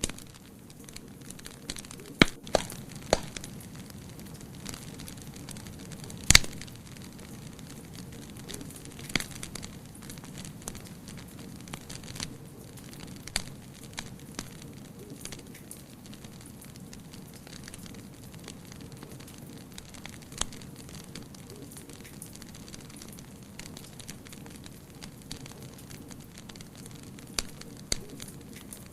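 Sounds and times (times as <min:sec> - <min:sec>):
wood fire crackling: 0:00.0 - 0:28.9
loud pop from fire: 0:02.2 - 0:04.2, 0:06.0 - 0:07.4.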